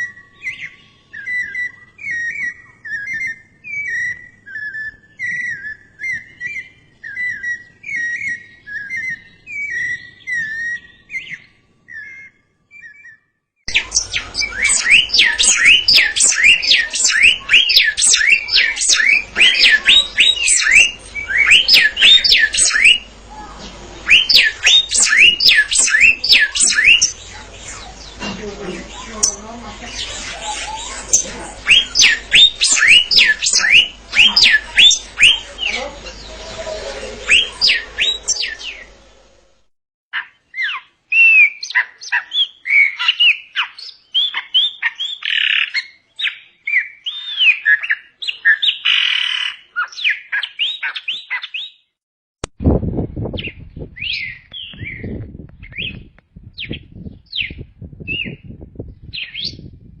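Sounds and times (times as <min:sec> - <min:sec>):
songbirds singing: 0:00.0 - 0:39.5, 0:40.2 - 0:51.9, 0:53.2 - 0:59.9
low rough noise: 0:13.7 - 0:39.7.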